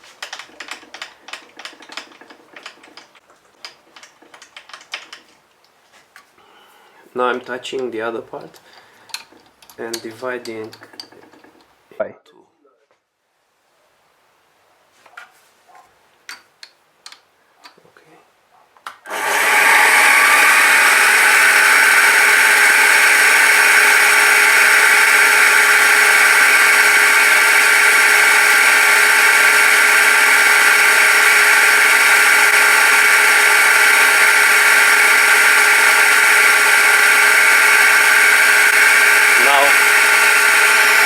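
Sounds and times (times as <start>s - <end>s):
milling machine motor whining: 19.1s - 41.0s.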